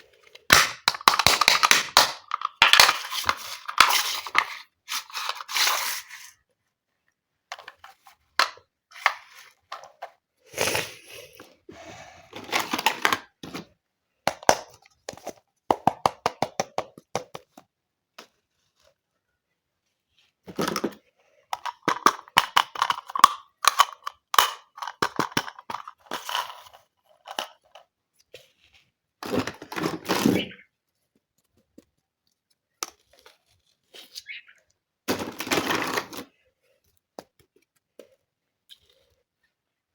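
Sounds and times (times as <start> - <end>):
plastic toy pieces clicking: 0.5 - 4.5, 21.6 - 26.6.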